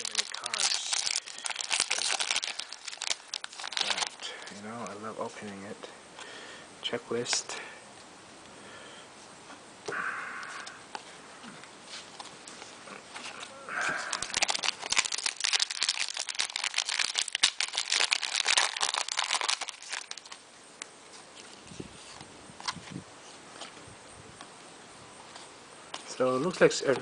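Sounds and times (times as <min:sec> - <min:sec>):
plastic wrapper crinkling: 0:00.0 - 0:05.0, 0:13.2 - 0:20.4.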